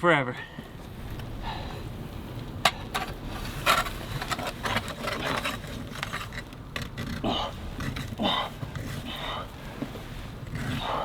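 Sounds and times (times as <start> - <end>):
ice auger scraping and crunching: 3.0 - 11.0.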